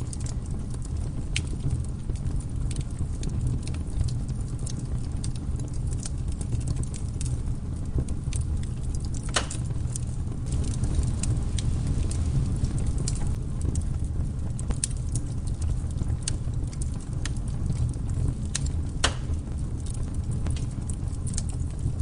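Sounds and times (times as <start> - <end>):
campfire crackling and popping: 0.0 - 22.0
low rumble of fire: 0.0 - 22.0.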